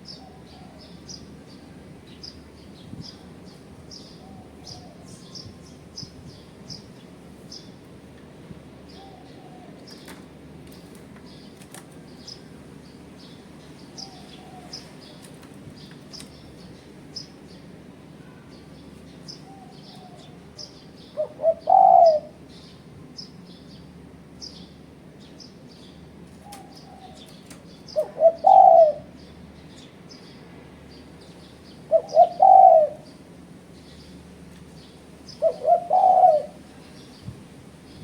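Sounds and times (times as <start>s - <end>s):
small birds chirping: 0.0s - 7.8s, 8.8s - 38.0s
dove cooing: 21.1s - 22.5s, 27.9s - 29.2s, 31.8s - 33.2s, 35.3s - 36.8s.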